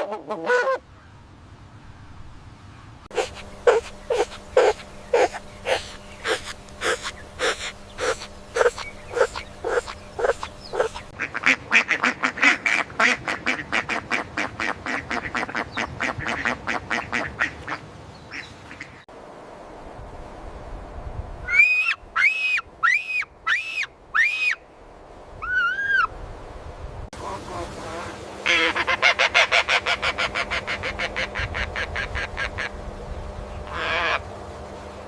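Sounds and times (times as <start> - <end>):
short bird calls: 3.1 - 11.1.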